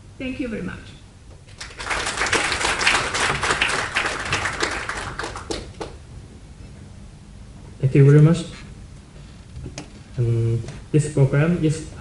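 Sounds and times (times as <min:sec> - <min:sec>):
audience applauding: 0:01.5 - 0:06.0.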